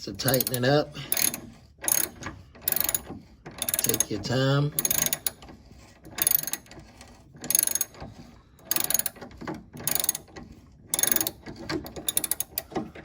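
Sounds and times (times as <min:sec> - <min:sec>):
socket ratchet clicking: 0:04.8 - 0:05.4, 0:08.7 - 0:09.2, 0:09.8 - 0:10.3, 0:11.0 - 0:11.4, 0:12.0 - 0:12.7.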